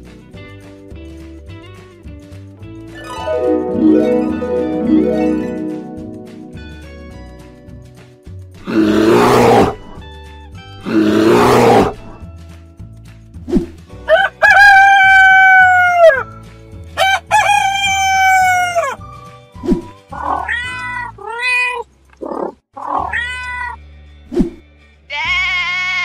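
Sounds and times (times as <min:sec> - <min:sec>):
soft background music: 0:00.0 - 0:22.1, 0:22.8 - 0:26.0
bear roaring: 0:08.6 - 0:10.0, 0:10.8 - 0:12.2
rooster crowing: 0:14.1 - 0:16.2, 0:17.0 - 0:19.0.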